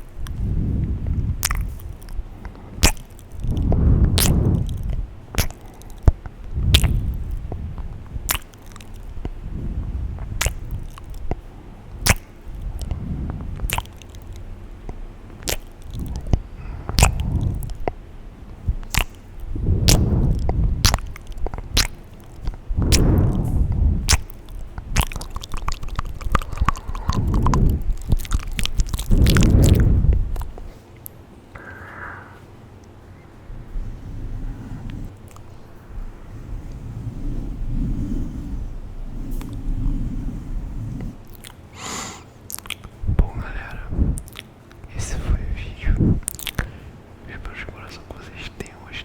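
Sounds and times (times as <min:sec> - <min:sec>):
low rumbles: 0:00.0 - 0:41.6, 0:42.5 - 0:49.0
wet mouth clicks and pops: 0:01.1 - 0:09.4, 0:10.1 - 0:11.4, 0:12.0 - 0:18.0, 0:18.7 - 0:31.7, 0:41.3 - 0:41.6, 0:42.5 - 0:46.8.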